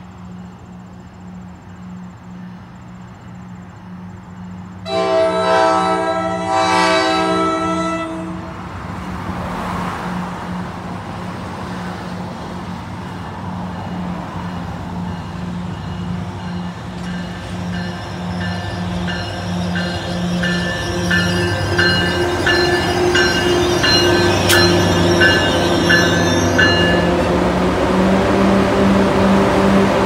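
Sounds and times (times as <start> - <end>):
bell ringing: 15.1 - 27.2.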